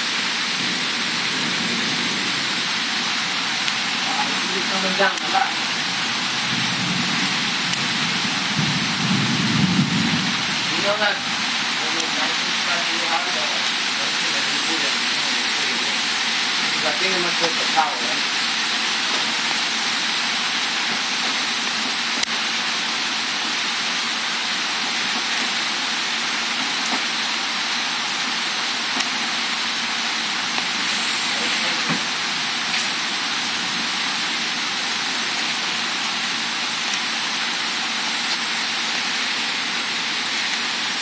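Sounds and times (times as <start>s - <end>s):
heavy rain on foliage: 0.0s - 41.0s.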